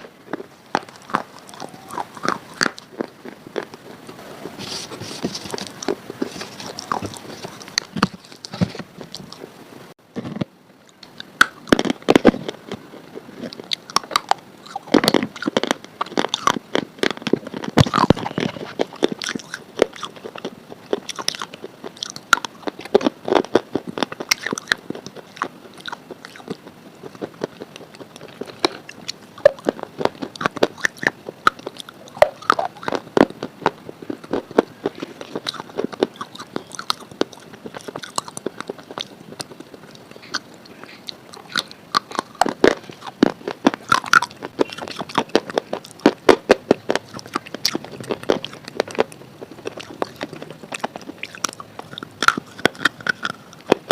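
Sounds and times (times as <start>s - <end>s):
crisp food being chewed: 0.0s - 9.6s, 10.2s - 53.9s.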